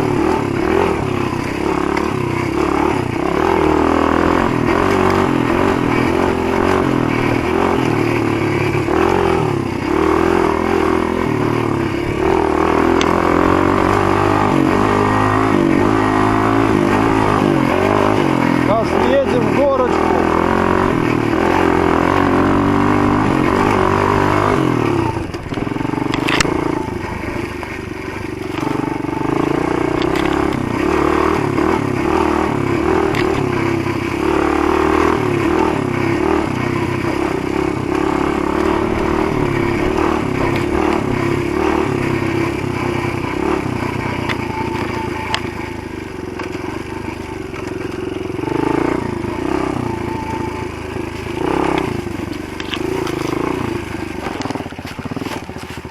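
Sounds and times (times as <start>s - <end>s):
pit bike engine revving: 0.0s - 55.9s
bike knocks and rattles: 23.0s - 33.8s, 51.0s - 55.9s.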